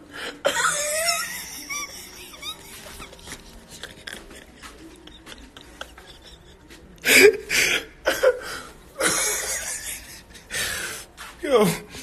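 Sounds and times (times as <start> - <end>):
man laughing: 0.5 - 8.4, 9.0 - 10.5.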